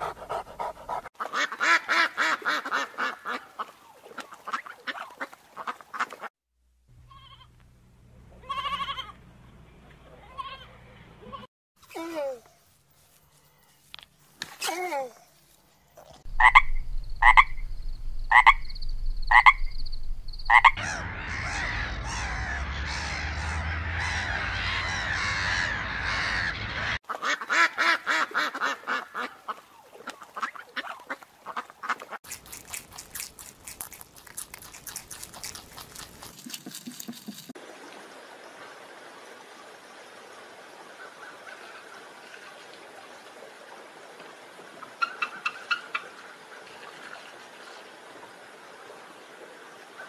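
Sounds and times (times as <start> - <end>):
waterbirds splashing and wingbeats: 0.9 - 6.3, 20.4 - 32.9, 35.7 - 50.0
frogs croaking: 16.0 - 26.6.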